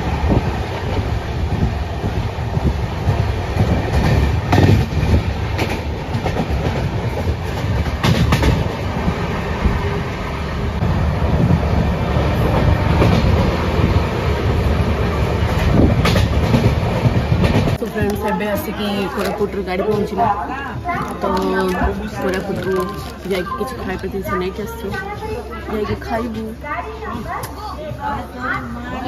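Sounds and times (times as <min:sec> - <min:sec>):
low rumble of train wheels: 0:00.0 - 0:29.0
wheels clicking over rail joints: 0:15.5 - 0:25.3.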